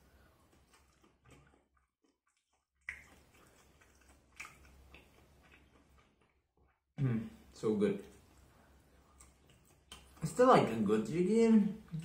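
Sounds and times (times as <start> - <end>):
person chewing fried chicken: 0.1 - 6.9, 8.1 - 10.2.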